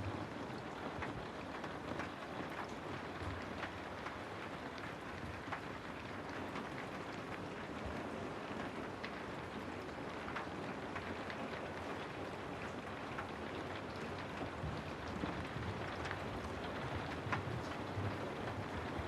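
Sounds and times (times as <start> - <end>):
steady rainfall: 0.0 - 19.0
raindrops tapping: 9.0 - 19.0.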